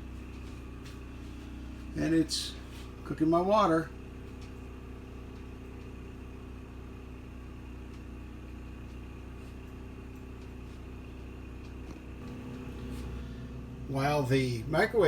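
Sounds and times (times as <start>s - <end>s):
generator engine running: 0.0s - 15.0s
microwave oven humming: 0.0s - 15.0s.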